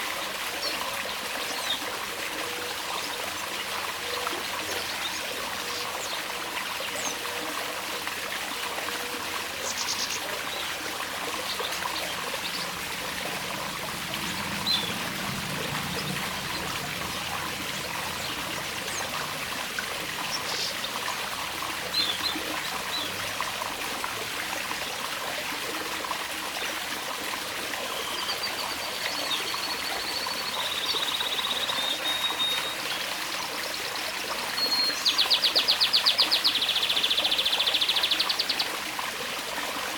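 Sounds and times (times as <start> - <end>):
water trickling: 0.0 - 39.9
birds chirping: 9.6 - 23.7.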